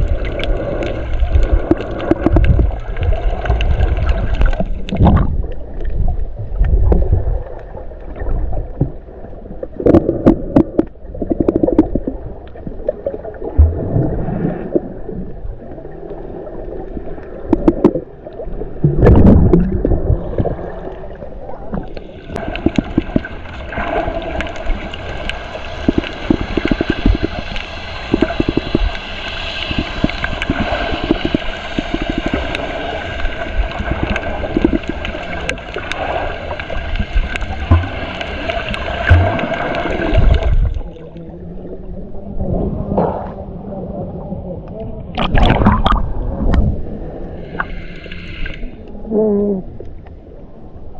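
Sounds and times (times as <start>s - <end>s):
water gurgling and sloshing: 0.0s - 50.9s
steady hiss: 22.0s - 40.4s.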